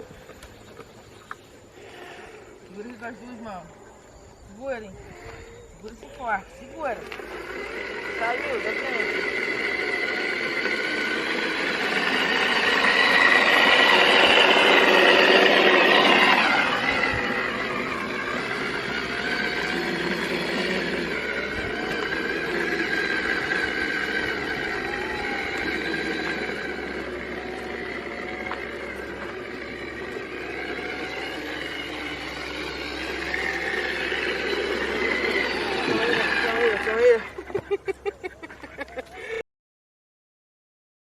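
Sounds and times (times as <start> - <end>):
electric motor whining: 4.7 - 37.7
rushing noise: 7.2 - 36.9.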